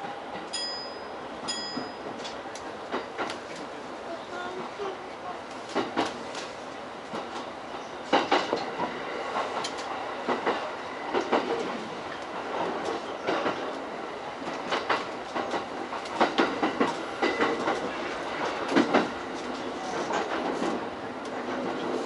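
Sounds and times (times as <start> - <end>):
train running noise: 0.0 - 22.0
wheels clacking over rail joints: 5.5 - 22.0.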